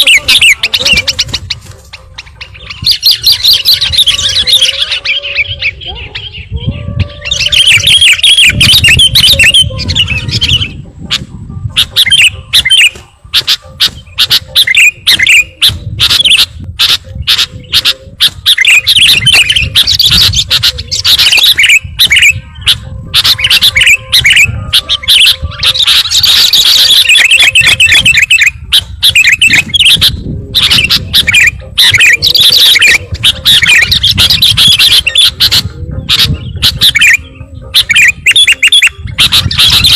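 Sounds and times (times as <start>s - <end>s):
bulbul chattering and chirping: 0.0s - 6.6s, 7.2s - 39.9s.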